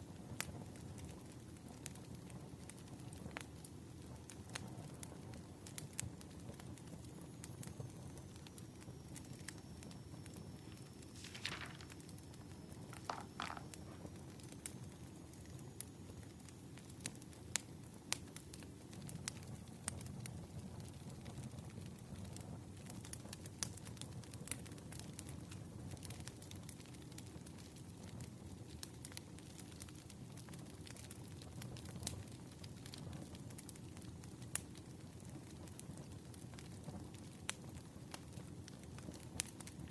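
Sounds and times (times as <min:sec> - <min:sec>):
wood fire crackling and popping: 0:00.1 - 0:39.9
soft hissing: 0:10.6 - 0:12.1
low fire rumble: 0:13.7 - 0:39.9.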